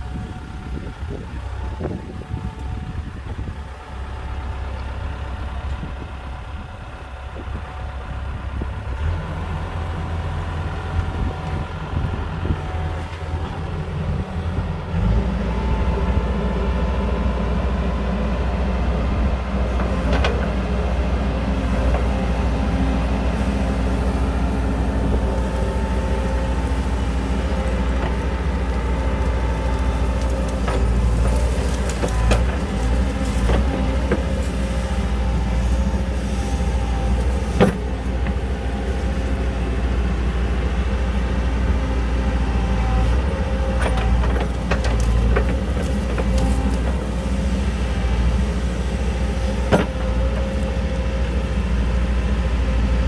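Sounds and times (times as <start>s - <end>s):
heavy diesel engine running: 0.0s - 53.0s.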